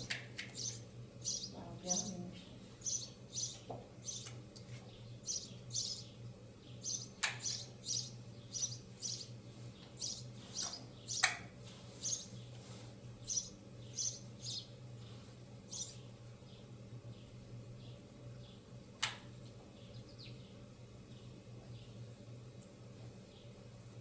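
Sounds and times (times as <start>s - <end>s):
steady low hum: 0.0s - 24.0s
bird chirping: 0.5s - 4.3s, 4.9s - 11.3s, 12.0s - 12.4s, 13.2s - 14.8s, 15.7s - 16.0s.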